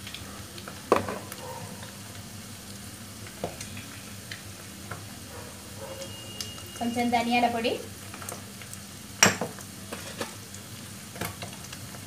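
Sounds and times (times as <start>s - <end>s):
egg sizzling in hot oil: 0.0s - 12.0s
oil crackles: 0.0s - 12.0s.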